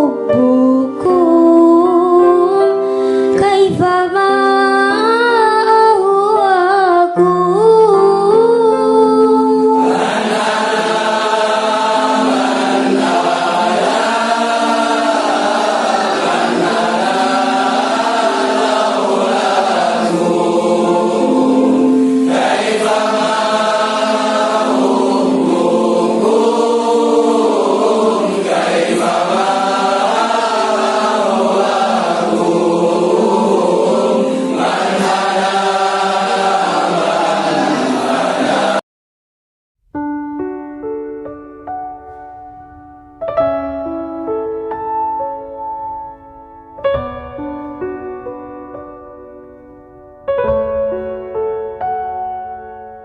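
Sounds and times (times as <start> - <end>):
group of voices chanting: 9.8 - 38.8.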